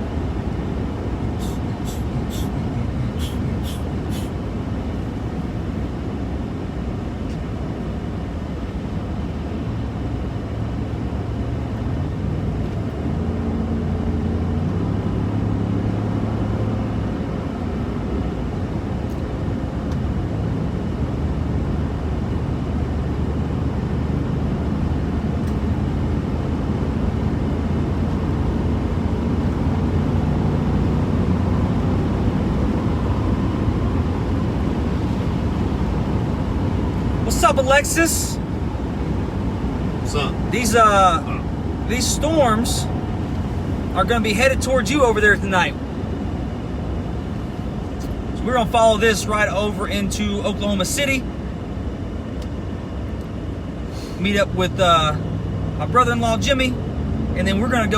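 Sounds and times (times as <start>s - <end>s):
truck road and engine drone: 0.0s - 57.9s.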